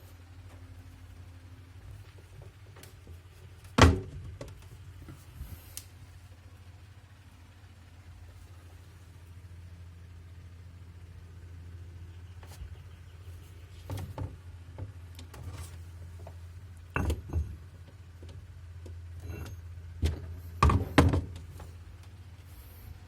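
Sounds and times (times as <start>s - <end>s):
steady low hum: 0.0s - 23.0s
objects knocking on plastic shelf: 20.0s - 21.4s.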